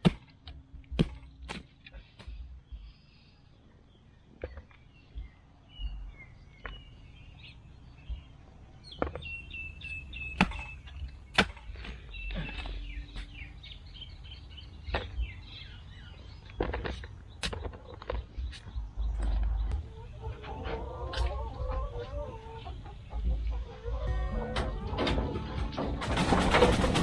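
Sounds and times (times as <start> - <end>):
steady low rumble: 0.0 - 4.1, 4.9 - 25.9
birds chirping: 0.0 - 27.0
sharp knocks: 10.4 - 11.8.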